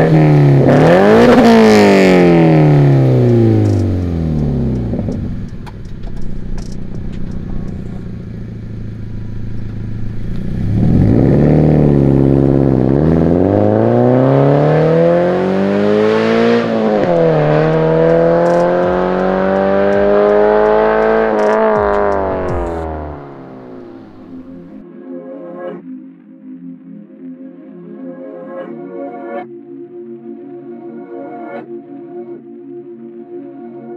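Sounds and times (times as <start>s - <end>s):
car engine revving: 0.0s - 24.8s.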